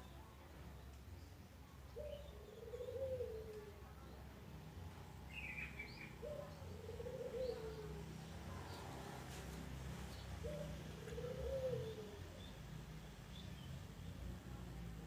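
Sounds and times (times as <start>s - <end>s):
dove cooing: 2.0s - 3.8s, 6.2s - 8.1s, 10.4s - 12.4s.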